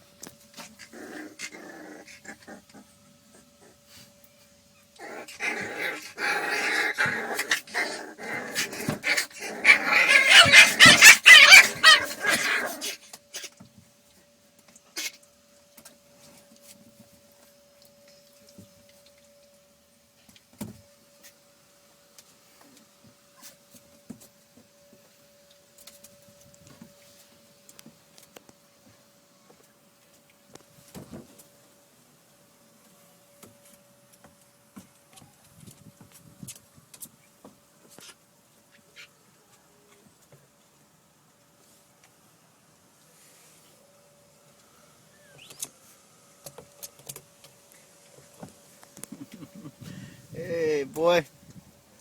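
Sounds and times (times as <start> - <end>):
puppies whimpering and yipping: 9.7 - 12.5.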